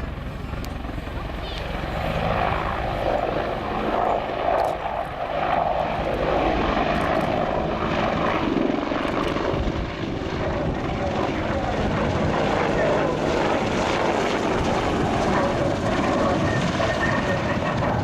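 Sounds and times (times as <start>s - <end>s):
helicopter rotor and engine noise: 0.0s - 18.0s.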